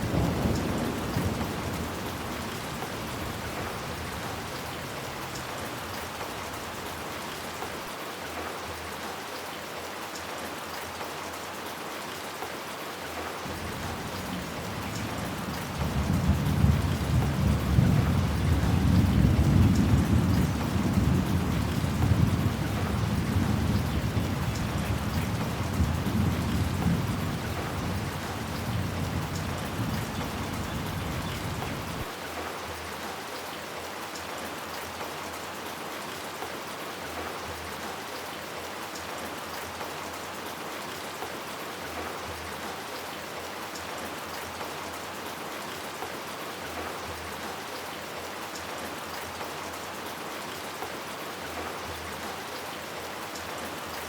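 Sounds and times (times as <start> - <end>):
rain pattering: 0.0 - 54.0
rolling thunder rumble: 13.5 - 32.1.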